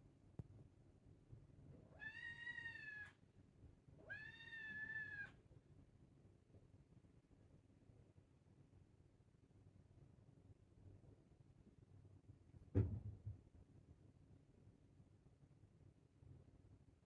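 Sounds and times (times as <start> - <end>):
cat meowing: 1.9 - 3.2, 4.0 - 5.4.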